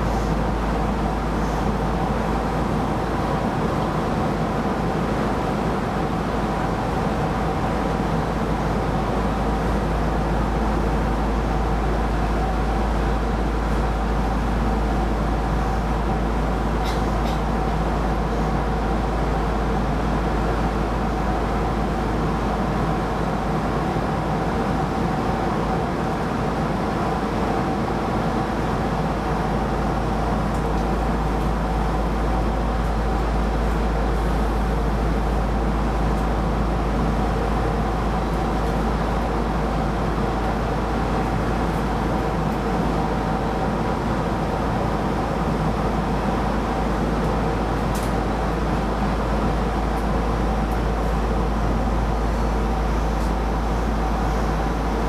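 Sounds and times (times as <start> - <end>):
steady hum: 0.0 - 55.0
train running rumble: 0.0 - 55.0.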